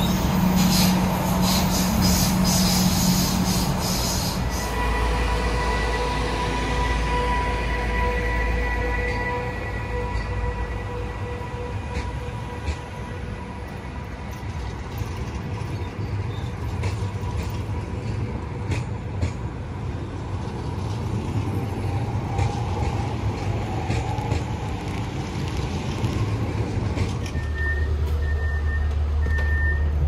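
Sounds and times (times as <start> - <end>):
train engine rumble: 0.0 - 30.0.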